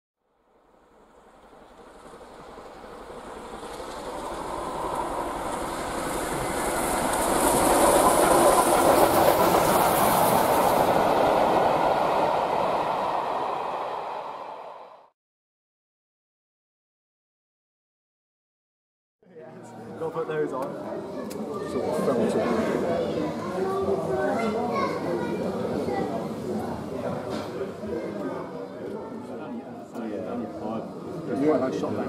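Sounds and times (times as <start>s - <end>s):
train wheels rumbling on rails: 1.1s - 15.0s.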